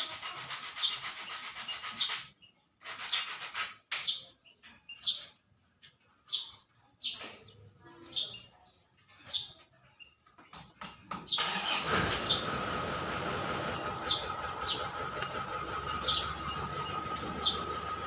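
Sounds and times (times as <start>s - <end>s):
small bird chirping: 0.0s - 10.4s, 14.0s - 15.3s, 15.9s - 17.8s.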